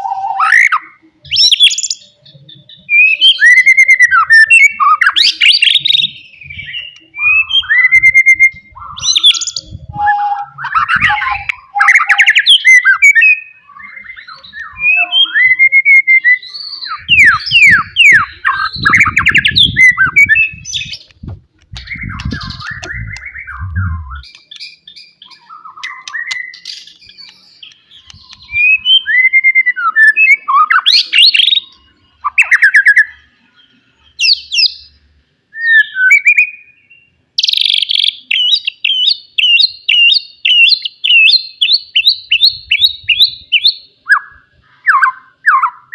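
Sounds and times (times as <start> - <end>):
bird singing whistled phrases: 0.0 - 21.1, 21.8 - 33.3, 35.5 - 45.9.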